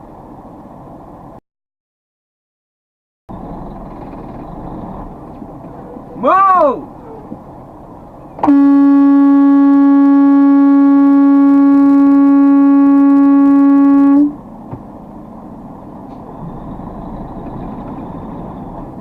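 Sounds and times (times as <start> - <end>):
engine and road noise: 0.0 - 1.4, 3.3 - 19.0
vehicle horn long blast: 8.4 - 14.4.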